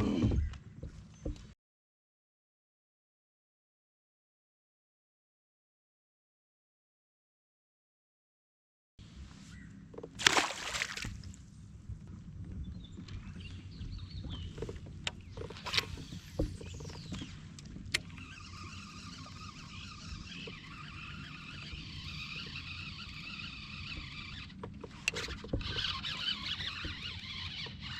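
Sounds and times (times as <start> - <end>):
splashy water rush: 10.2 - 11.2.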